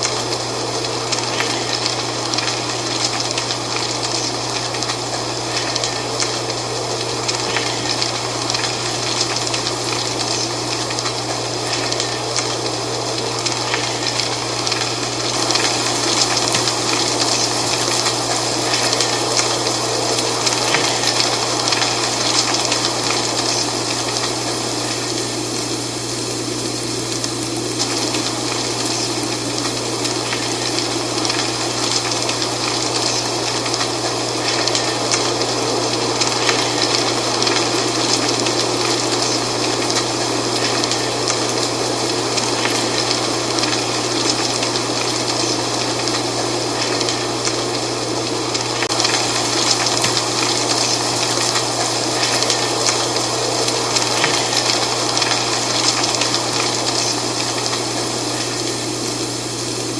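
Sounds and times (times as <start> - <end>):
dry leaves rustling in wind: 0.0 - 59.9.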